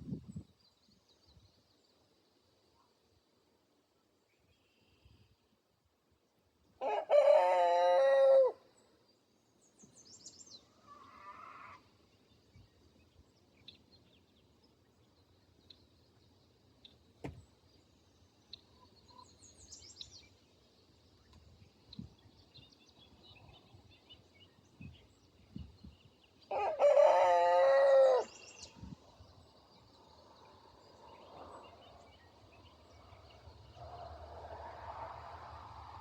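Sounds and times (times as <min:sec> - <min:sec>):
rooster crowing: 0:06.8 - 0:08.6, 0:26.5 - 0:28.4
soft knocks: 0:17.2 - 0:17.4.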